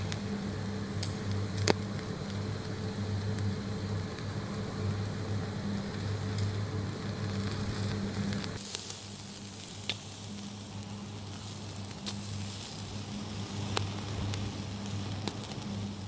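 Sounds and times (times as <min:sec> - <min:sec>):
food sizzling in a frying pan: 0:00.0 - 0:16.0.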